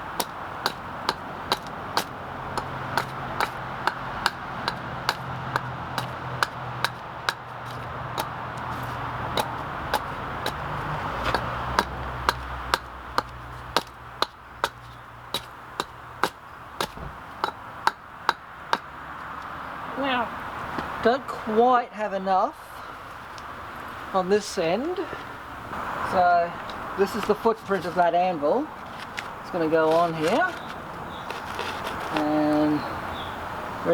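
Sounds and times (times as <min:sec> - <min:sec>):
hand tool striking wood: 0:00.1 - 0:18.9.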